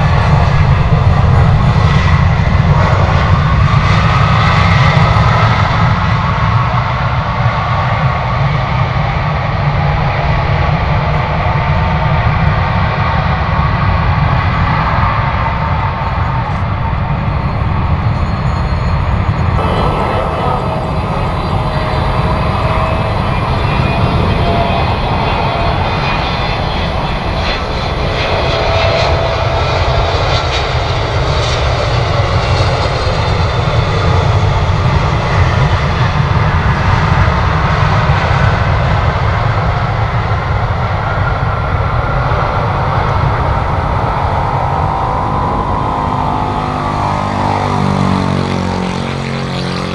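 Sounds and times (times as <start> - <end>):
faint engine whine: 14.8 - 49.9
jet engines roaring: 16.4 - 49.9.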